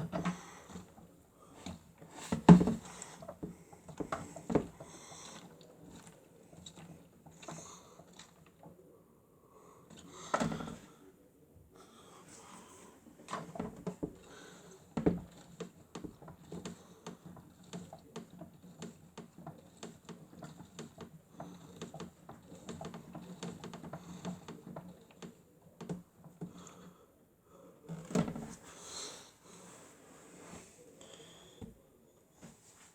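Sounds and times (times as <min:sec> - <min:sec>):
toy washing machine motor hum: 0:00.0 - 0:08.8, 0:13.3 - 0:26.8.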